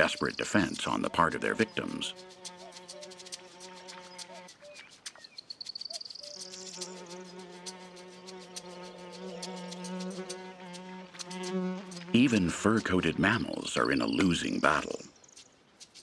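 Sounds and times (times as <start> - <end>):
fly buzzing: 0.0 - 4.9, 5.7 - 13.2.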